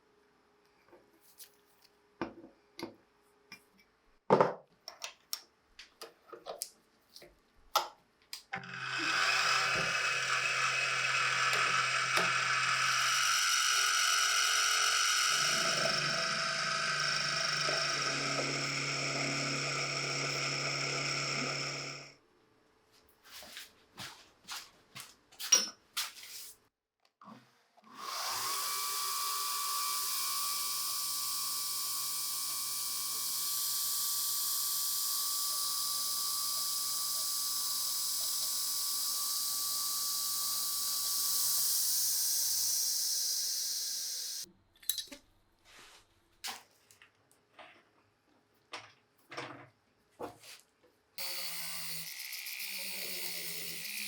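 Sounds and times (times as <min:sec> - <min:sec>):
electric drill whining: 0:08.6 - 0:22.1, 0:27.9 - 0:44.5, 0:51.2 - 0:54.0.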